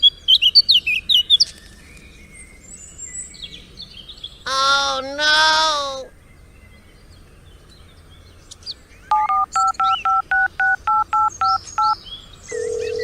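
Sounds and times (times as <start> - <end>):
phone keypad beeps: 9.1 - 13.0
steady single phone tone: 9.1 - 13.0.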